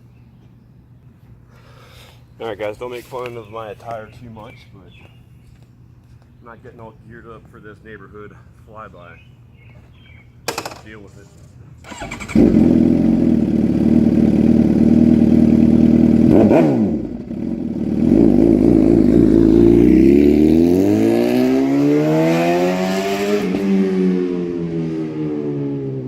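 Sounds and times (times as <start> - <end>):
motorcycle engine revving: 11.8 - 26.0.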